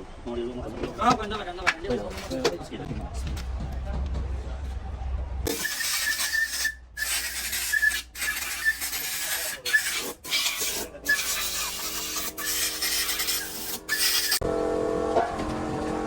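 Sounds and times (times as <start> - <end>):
rasping scrubbing strokes: 5.5 - 14.4.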